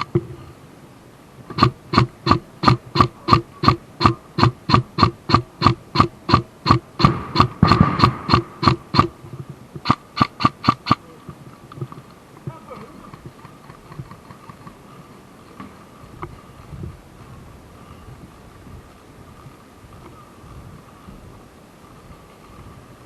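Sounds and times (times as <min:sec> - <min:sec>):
airsoft gun firing single shots: 0:01.5 - 0:09.1.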